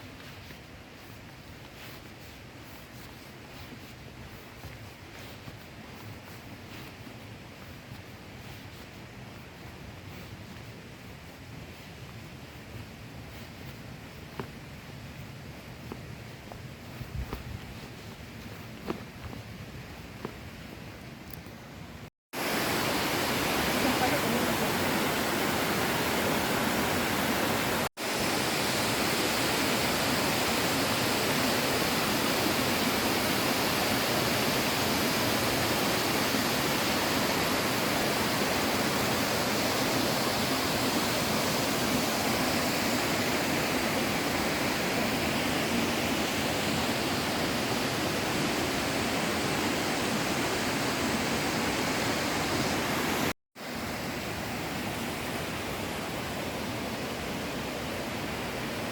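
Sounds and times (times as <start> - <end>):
waterfall roaring: 22.4 - 53.3.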